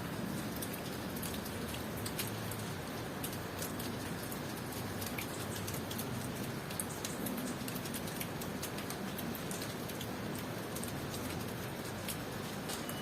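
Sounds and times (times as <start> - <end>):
raindrops ticking on surfaces: 0.0 - 13.0.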